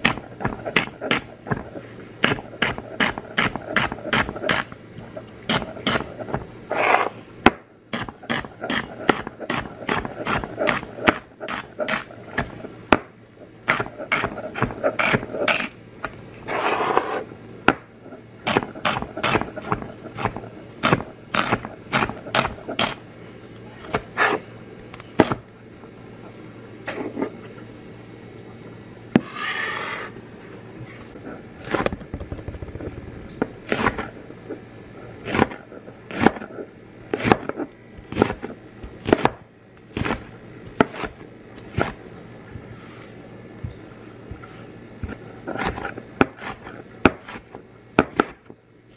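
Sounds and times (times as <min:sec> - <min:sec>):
knife scraping: 0:05.5 - 0:07.2, 0:08.0 - 0:12.2, 0:13.7 - 0:15.8, 0:16.4 - 0:17.3, 0:23.9 - 0:24.5, 0:29.2 - 0:30.2, 0:33.7 - 0:34.1, 0:44.3 - 0:47.6
knife chopping on stone: 0:37.1 - 0:42.0, 0:45.0 - 0:48.4.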